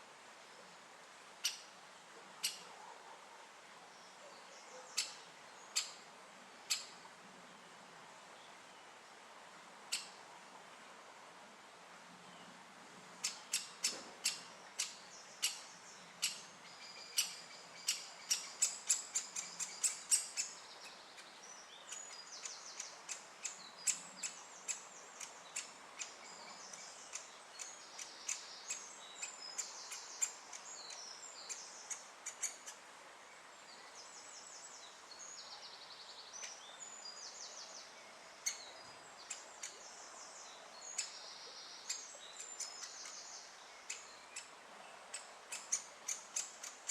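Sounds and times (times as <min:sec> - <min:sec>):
woodpecker sharp clicks: 0:13.2 - 0:15.6.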